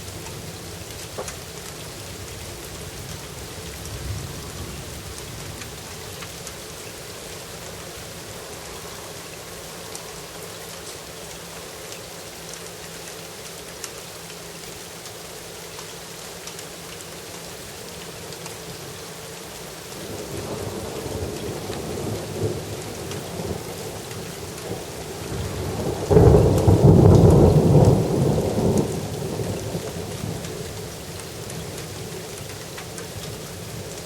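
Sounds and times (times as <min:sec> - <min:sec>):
steady rain: 0:00.0 - 0:34.0
thunder rumbling: 0:20.0 - 0:31.9.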